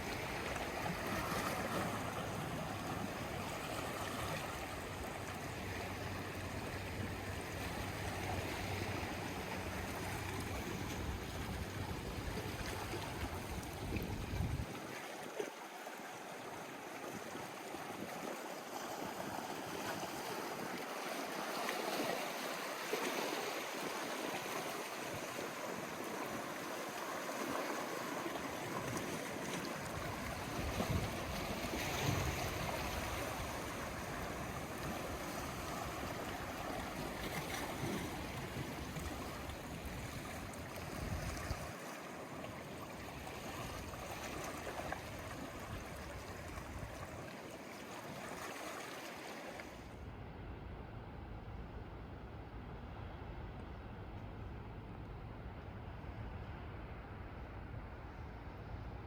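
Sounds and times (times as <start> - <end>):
sea waves washing on shore: 0.0 - 50.1.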